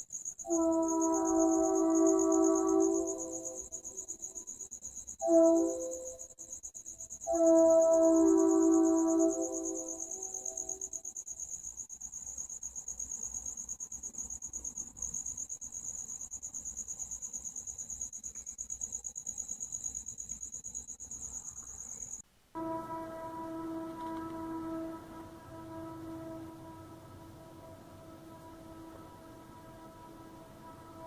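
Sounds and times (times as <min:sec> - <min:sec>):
crickets chirping: 0:00.0 - 0:31.0
droning hum: 0:22.6 - 0:31.0.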